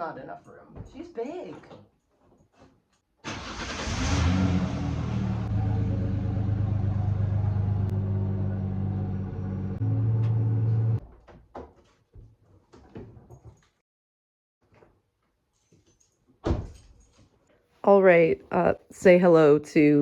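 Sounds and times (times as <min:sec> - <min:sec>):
car engine running: 0:04.8 - 0:11.0.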